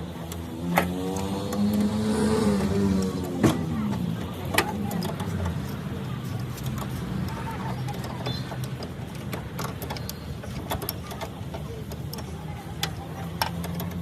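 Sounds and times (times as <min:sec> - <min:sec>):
sharp clicks and knocks: 0:00.0 - 0:14.0.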